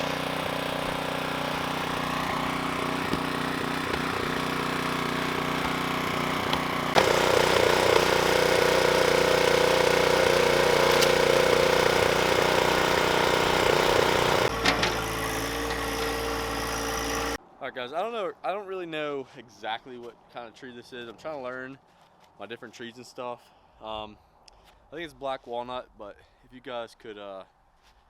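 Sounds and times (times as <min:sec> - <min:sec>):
log splitter engine running: 0:00.0 - 0:17.4.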